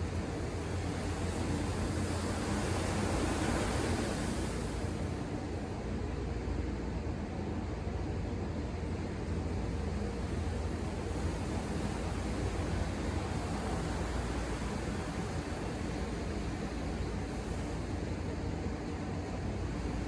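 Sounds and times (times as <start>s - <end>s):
distant ocean surf: 10.7s - 17.7s.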